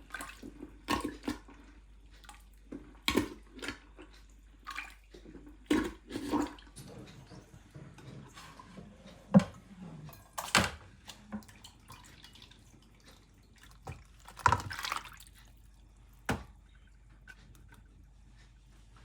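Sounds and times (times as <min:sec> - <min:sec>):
water splashing and dripping: 0:10.3 - 0:16.6.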